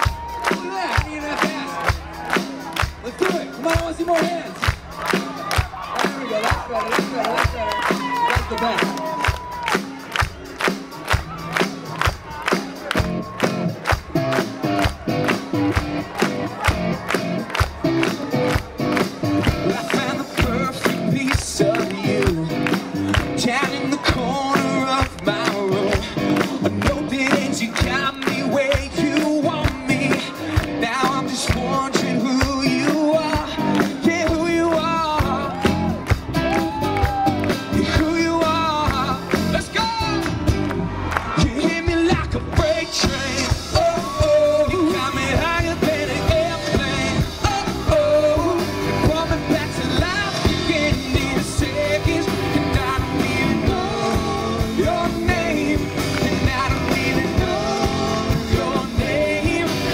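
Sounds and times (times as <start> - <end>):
man singing: 0.0 - 5.2, 19.4 - 40.5, 41.2 - 59.9
rock band playing: 0.0 - 59.9.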